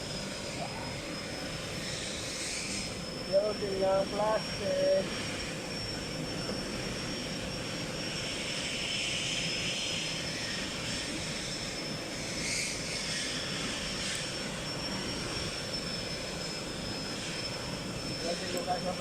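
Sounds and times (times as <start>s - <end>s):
machine drone with high whine: 0.0s - 19.0s.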